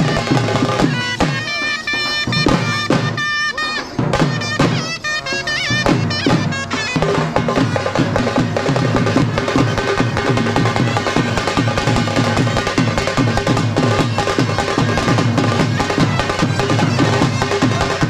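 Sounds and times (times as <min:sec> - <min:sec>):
frame drums beating: 0:00.0 - 0:18.0
ornamented melody line: 0:00.0 - 0:18.0.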